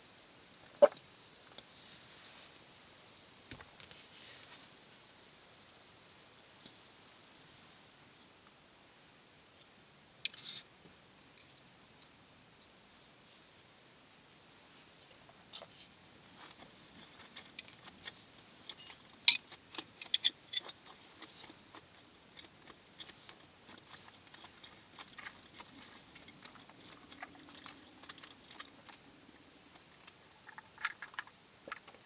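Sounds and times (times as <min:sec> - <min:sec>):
person chewing and crunching: 0:16.3 - 0:32.0.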